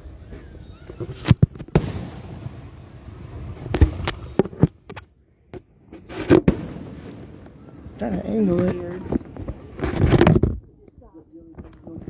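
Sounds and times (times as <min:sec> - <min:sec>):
fireworks booming: 0:01.5 - 0:04.7, 0:06.2 - 0:09.8.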